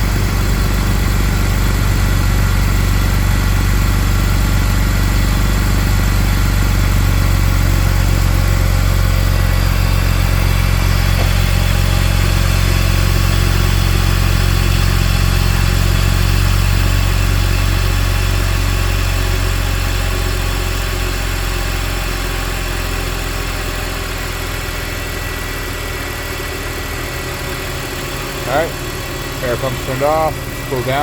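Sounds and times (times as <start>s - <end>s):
car engine idling: 0.0s - 31.0s
air pump humming: 7.2s - 13.6s.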